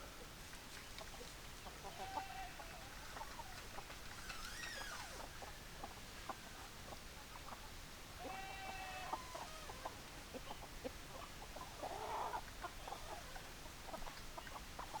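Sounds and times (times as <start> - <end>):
chickens clucking: 5.1 - 15.0
chicken harsh call: 8.2 - 9.7.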